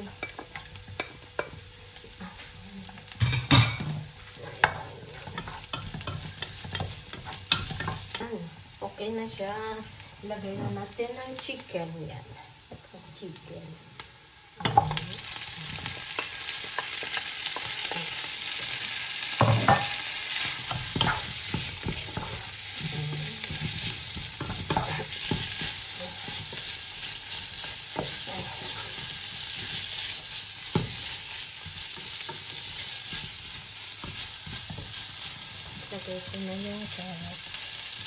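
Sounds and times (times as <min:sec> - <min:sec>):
chicken sizzling in a pot: 0:00.0 - 0:38.0
wooden spatula scraping pan: 0:19.5 - 0:37.0.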